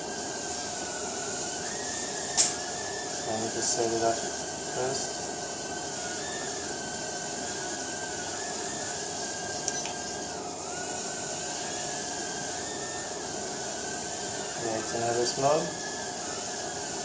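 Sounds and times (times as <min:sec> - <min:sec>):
quadcopter motors whining: 0:13.8 - 0:16.4.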